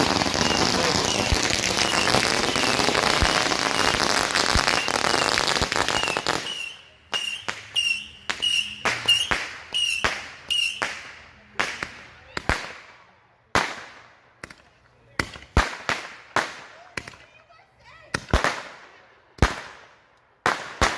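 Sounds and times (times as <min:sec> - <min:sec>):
firework whistles: 0:00.0 - 0:11.1
firework bangs: 0:00.0 - 0:12.9, 0:13.5 - 0:14.1
fireworks crackling: 0:00.0 - 0:14.2.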